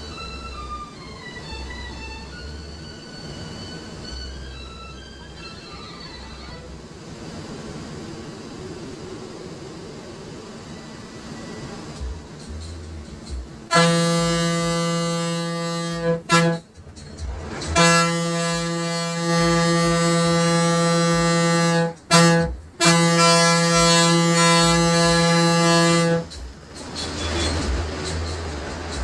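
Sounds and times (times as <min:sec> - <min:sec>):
bus engine running: 0:00.0 - 0:29.0
bus horn blasts: 0:13.7 - 0:16.7, 0:17.7 - 0:27.8.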